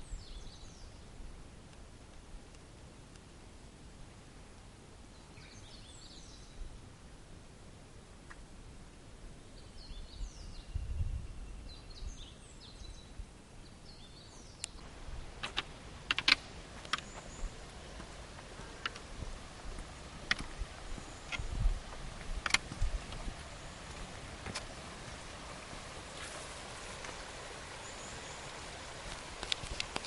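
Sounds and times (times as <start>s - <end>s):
small birds chirping: 5.1s - 6.7s, 9.5s - 25.3s, 26.2s - 30.0s
sharp clicks or knocks: 15.4s - 17.1s, 22.4s - 22.9s.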